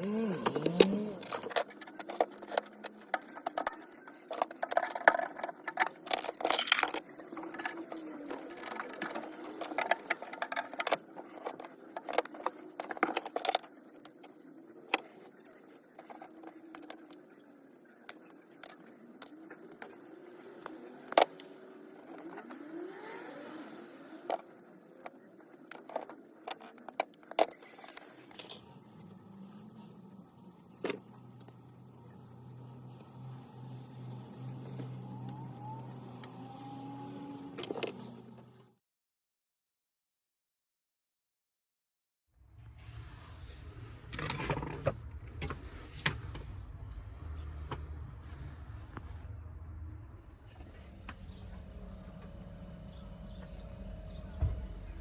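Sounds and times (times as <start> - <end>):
hard objects clicking and scraping: 0.0 - 17.2
steady low hum: 42.5 - 55.0.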